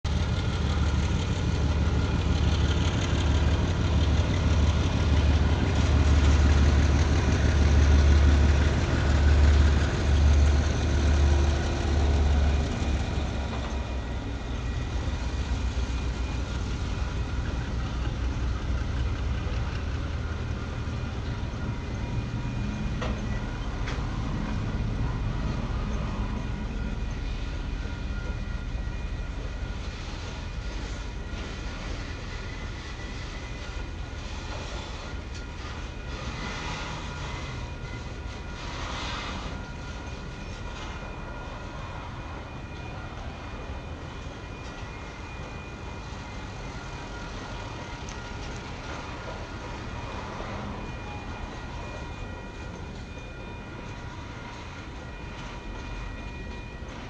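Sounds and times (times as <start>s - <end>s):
diesel engine hum: 0.0s - 34.5s
train wheels rumbling on rail: 0.0s - 57.0s.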